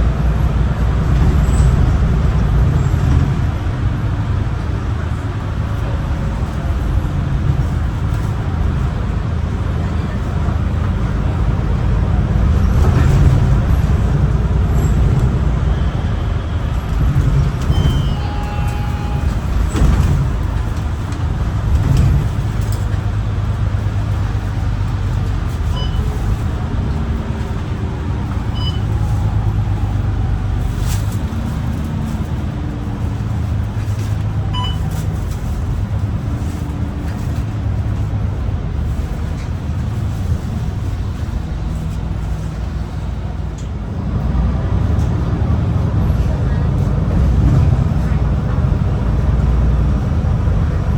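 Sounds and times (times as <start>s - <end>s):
bus diesel engine droning: 0.0s - 50.9s
road and tyre noise: 0.0s - 50.9s
short high beeps: 28.6s - 28.8s.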